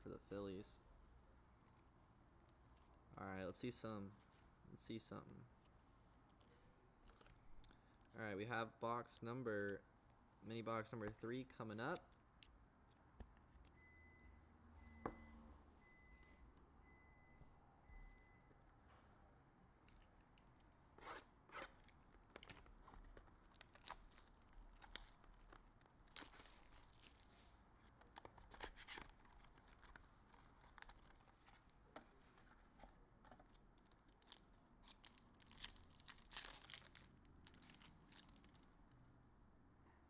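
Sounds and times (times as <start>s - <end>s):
plastic wrap tearing and crinkling: 21.6s - 27.6s, 33.8s - 38.7s.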